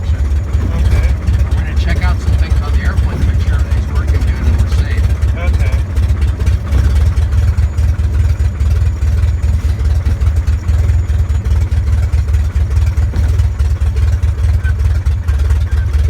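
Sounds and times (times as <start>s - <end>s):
airplane engine and propeller droning: 0.0s - 16.0s.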